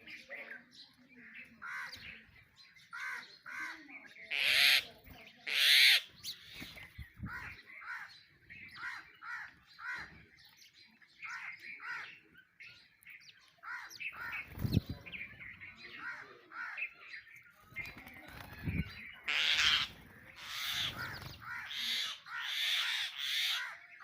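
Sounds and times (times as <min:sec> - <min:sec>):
sparrows chirping: 0:00.0 - 0:24.0
loud harsh bird call: 0:02.9 - 0:10.2, 0:18.4 - 0:24.0.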